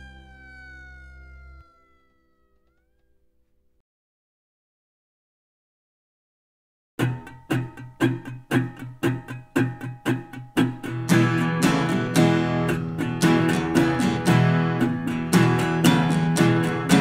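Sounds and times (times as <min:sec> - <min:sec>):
strummed guitar: 0:07.0 - 0:17.0.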